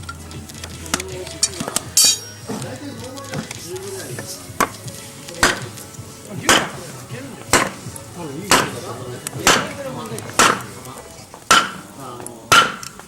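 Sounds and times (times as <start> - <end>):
wood being chopped: 4.6 - 5.8, 6.4 - 11.9, 12.5 - 13.0.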